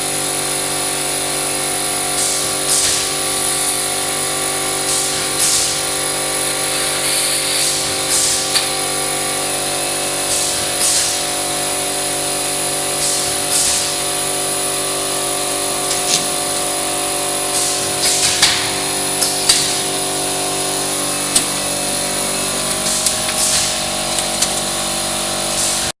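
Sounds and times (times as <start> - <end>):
machine humming: 0.0 - 26.0
metal hissing and scraping: 15.8 - 25.9.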